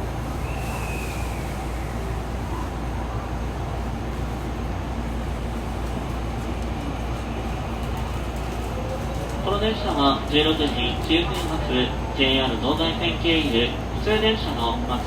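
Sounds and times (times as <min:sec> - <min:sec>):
electric train humming at platform: 0:00.0 - 0:15.0.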